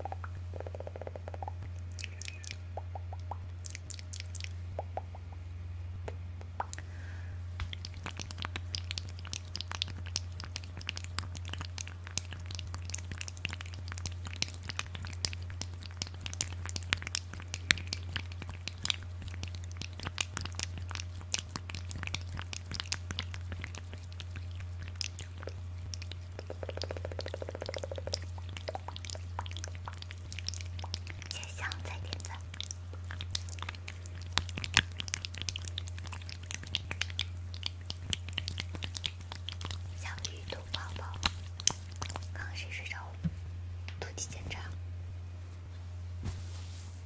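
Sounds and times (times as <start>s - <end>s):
steady low hum: 0.0s - 47.0s
crisp clicks and crackles: 7.6s - 42.4s.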